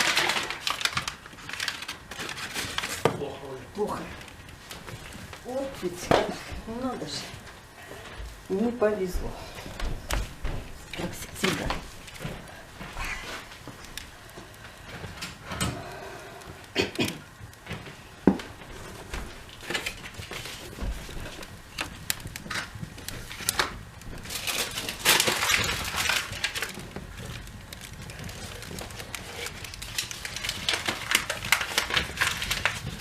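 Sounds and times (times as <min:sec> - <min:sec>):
cardboard rustling: 0:18.7 - 0:33.0.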